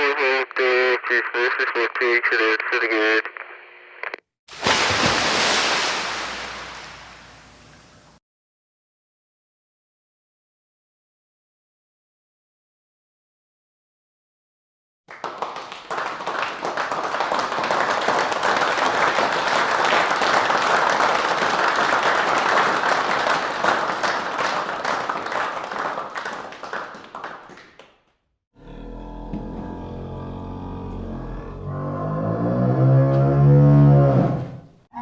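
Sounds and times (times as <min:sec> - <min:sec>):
crowd clapping: 0:15.1 - 0:28.0.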